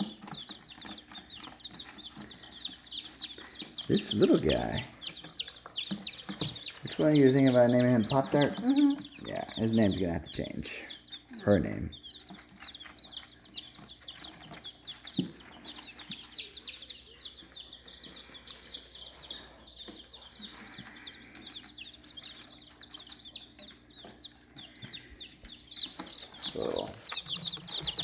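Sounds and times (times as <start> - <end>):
baby chicks peeping: 0.0 - 28.0.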